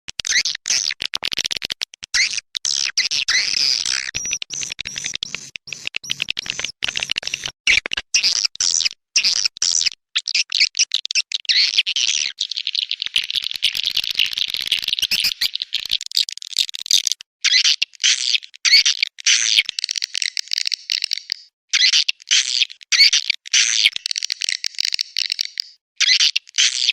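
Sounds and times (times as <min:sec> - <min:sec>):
swiftlet chattering twitters: 0:02.2 - 0:07.8, 0:12.4 - 0:17.2.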